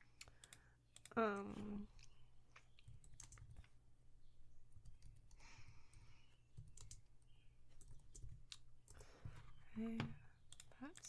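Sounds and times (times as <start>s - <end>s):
keyboard and mouse clicks: 0.1s - 3.8s, 4.8s - 9.1s, 10.5s - 11.0s.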